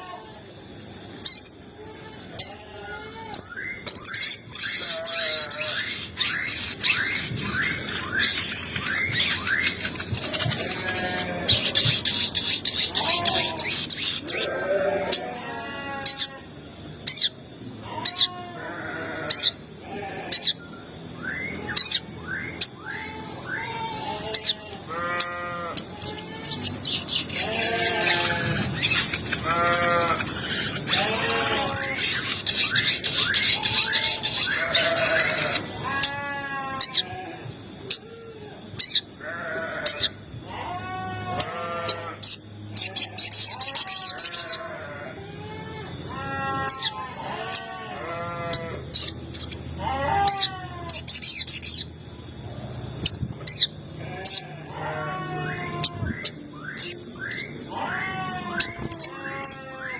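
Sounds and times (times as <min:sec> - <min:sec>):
nasal bleating bird calls: 0:01.3 - 0:38.1, 0:38.8 - 0:51.9, 0:53.5 - 0:59.9
high bird chirps: 0:03.4 - 0:14.6, 0:24.4 - 0:36.1.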